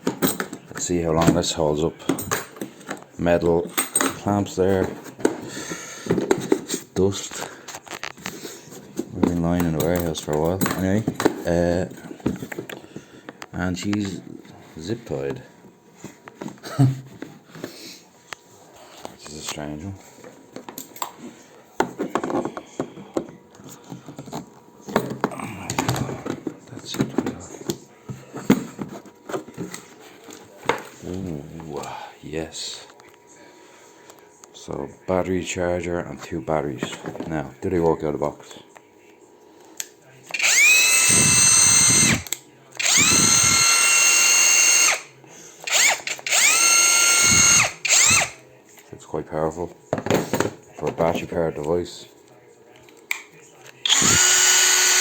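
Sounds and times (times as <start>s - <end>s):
power tool motor whine: 40.3s - 45.1s, 45.7s - 48.4s, 53.8s - 55.0s.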